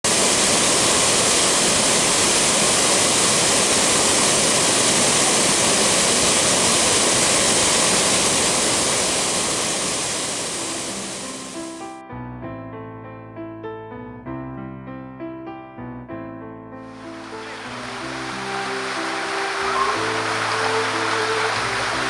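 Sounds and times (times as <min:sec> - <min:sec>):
rushing falling water: 0:00.0 - 0:11.9, 0:16.9 - 0:22.0.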